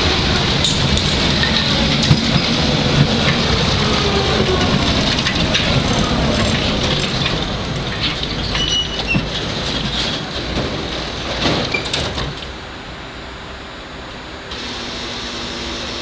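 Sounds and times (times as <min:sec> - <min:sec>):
tram wheels rumbling: 0:00.0 - 0:16.0.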